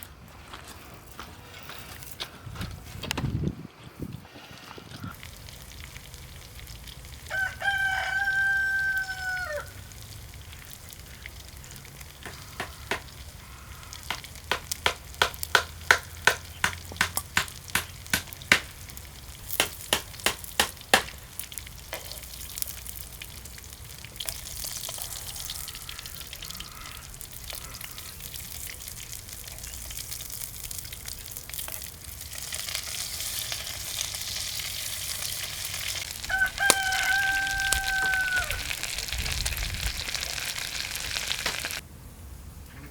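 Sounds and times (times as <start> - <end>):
food sizzling in a pan: 5.1 - 15.1, 17.6 - 41.8
rooster crowing: 7.3 - 9.8, 36.0 - 39.2
sharp knocks: 12.2 - 13.1, 14.1 - 18.7.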